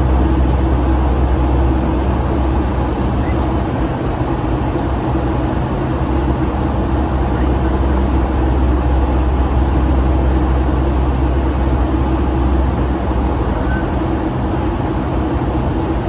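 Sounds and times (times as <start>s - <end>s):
airliner cabin jet engine drone: 0.0s - 16.0s.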